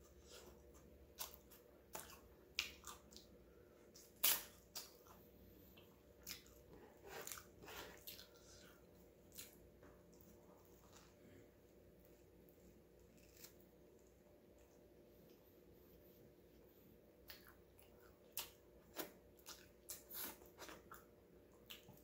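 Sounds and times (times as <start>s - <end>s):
person chewing and biting sandwich: 12.2s - 14.2s.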